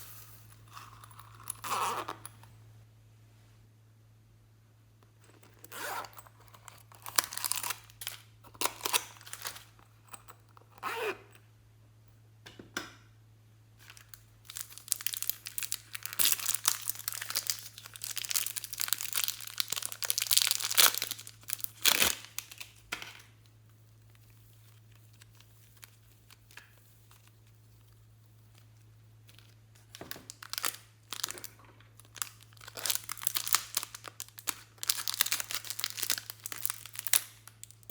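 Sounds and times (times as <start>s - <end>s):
slime squishing and crackling: 14.0s - 22.9s, 29.2s - 37.9s.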